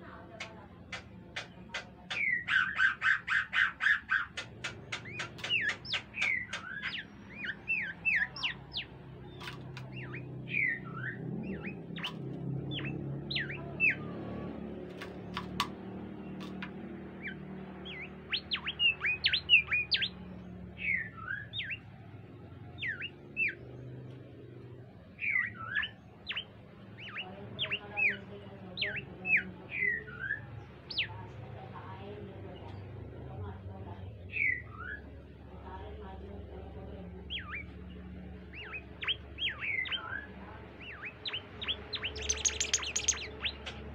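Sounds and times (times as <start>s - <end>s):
low background hum: 0.0s - 43.9s
bird whistled chirps: 2.1s - 14.1s, 17.2s - 20.1s, 38.5s - 43.8s.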